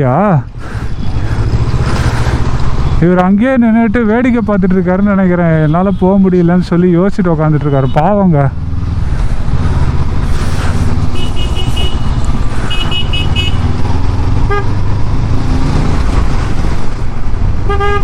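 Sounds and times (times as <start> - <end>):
motorcycle engine rumble: 0.0 - 18.0
vehicle horns: 5.4 - 6.7, 7.5 - 8.2, 11.1 - 13.8, 14.4 - 14.8, 17.6 - 18.0.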